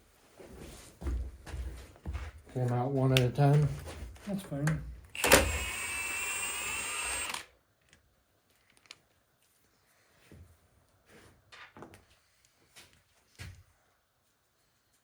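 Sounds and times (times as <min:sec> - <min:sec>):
power tool running: 0:05.1 - 0:07.5.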